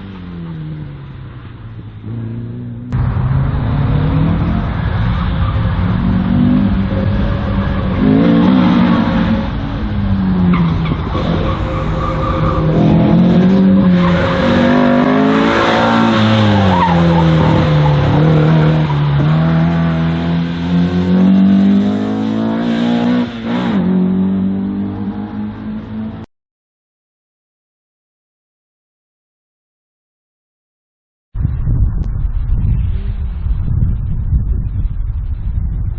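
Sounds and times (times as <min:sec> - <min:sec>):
race car engine revving: 0:00.0 - 0:26.3.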